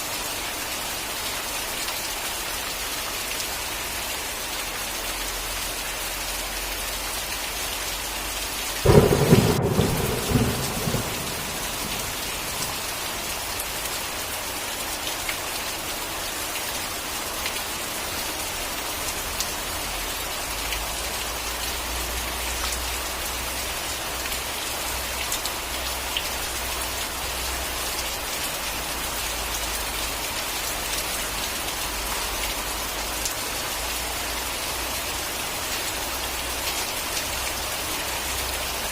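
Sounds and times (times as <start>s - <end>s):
steady rain falling: 0.0s - 38.9s
thunder clap rumbling: 8.8s - 13.3s.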